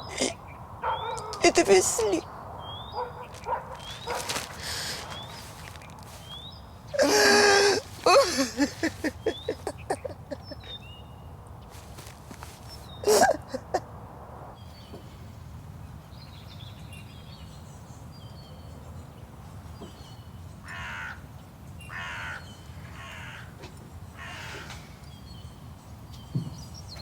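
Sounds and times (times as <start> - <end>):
small birds chirping: 0.0 - 13.9, 14.6 - 27.0
low outdoor background: 0.0 - 27.0
crow cawing: 3.0 - 6.4, 7.0 - 10.6, 20.6 - 21.2, 21.9 - 24.9.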